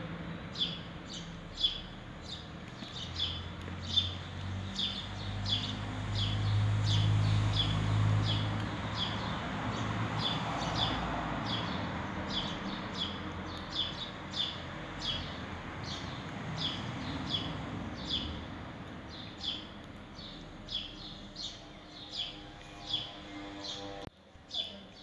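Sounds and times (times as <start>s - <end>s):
small bird chirping: 0.5s - 23.9s.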